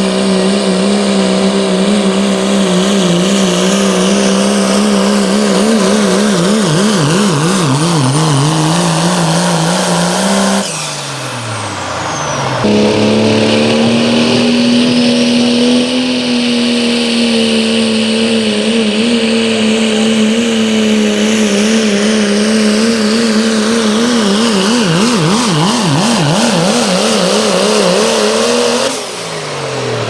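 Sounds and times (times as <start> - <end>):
truck engine running flat out: 0.0 - 30.0.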